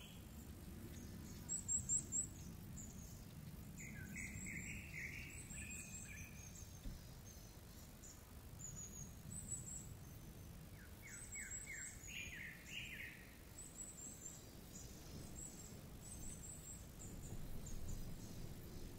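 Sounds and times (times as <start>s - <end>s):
steady low rumble: 14.7s - 18.9s
lower quick rising bird notes: 14.8s - 18.9s.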